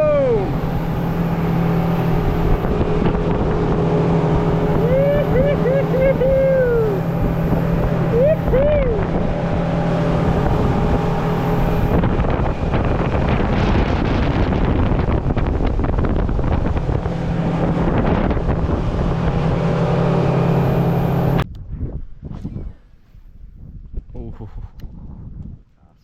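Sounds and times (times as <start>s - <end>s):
boat engine running: 0.0s - 21.4s
wind noise on microphone: 0.0s - 26.0s.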